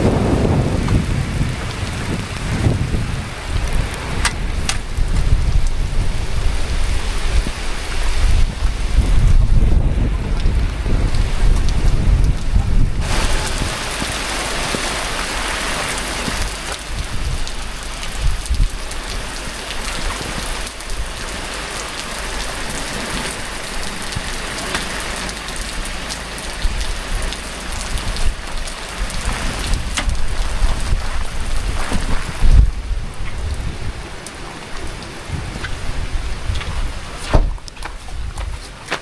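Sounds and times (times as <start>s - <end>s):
heavy rain pouring: 0.0s - 39.0s
low wind rumble: 0.0s - 39.0s.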